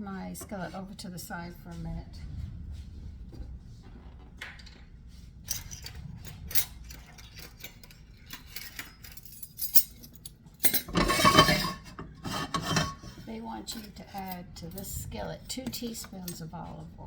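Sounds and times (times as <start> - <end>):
low steady hum: 0.0 - 17.0
utensils clinking against dishes: 5.5 - 16.9.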